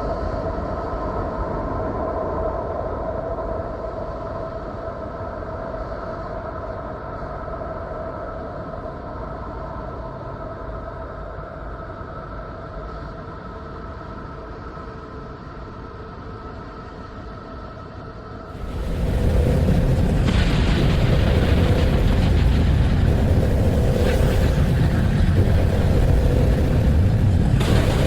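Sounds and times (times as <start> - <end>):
rumbling hiss: 18.5 - 28.0
droning tones: 18.6 - 28.0.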